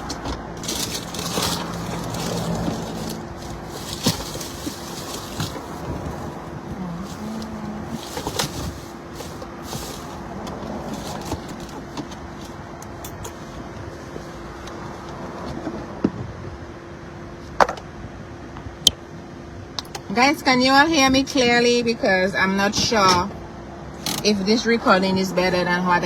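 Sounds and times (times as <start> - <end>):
car hum: 0.0 - 15.2.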